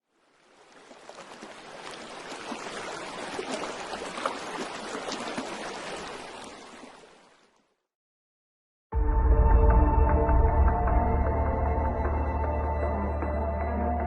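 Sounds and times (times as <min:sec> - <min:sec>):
rushing water with splashes: 0:00.0 - 0:07.8.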